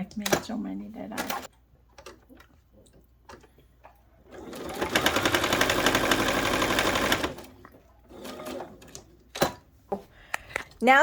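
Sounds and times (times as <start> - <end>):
sewing machine stitching: 4.2 - 9.6.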